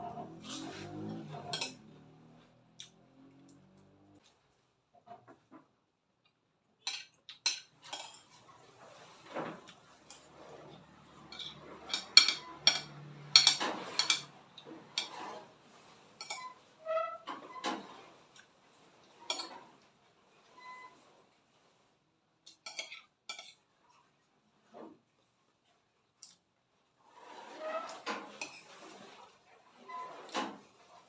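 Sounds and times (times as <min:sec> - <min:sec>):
utensils clinking on a plate: 0:00.4 - 0:02.1, 0:06.8 - 0:15.5, 0:16.2 - 0:16.6, 0:19.2 - 0:19.7, 0:22.5 - 0:23.6, 0:27.8 - 0:29.3.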